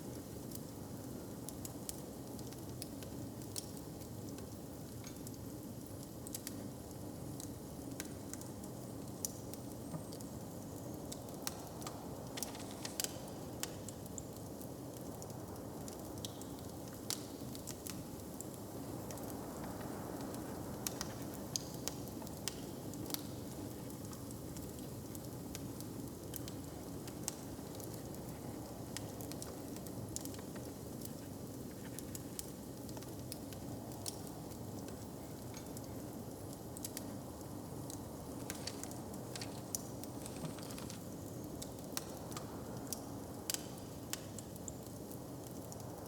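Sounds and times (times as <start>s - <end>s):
wood fire crackling and popping: 0.0s - 46.0s.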